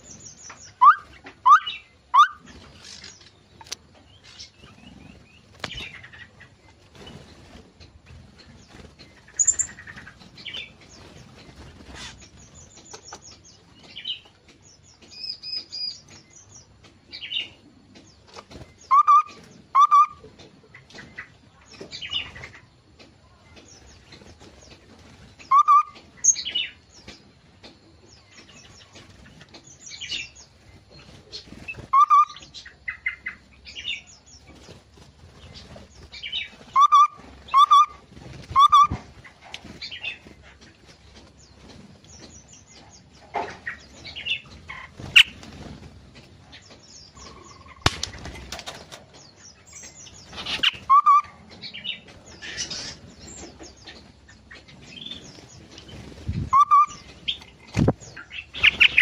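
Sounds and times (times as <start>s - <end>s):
songbirds chirping and twittering: 0.0s - 59.0s
bulbuls loud call notes: 0.8s - 2.5s.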